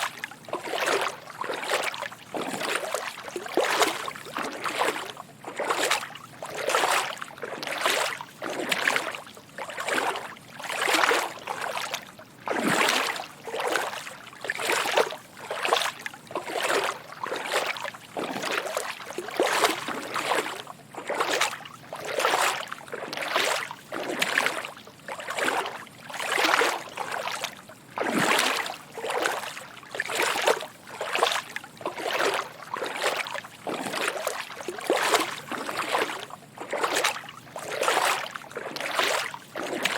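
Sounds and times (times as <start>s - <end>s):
footsteps wading through water: 0.0s - 39.9s.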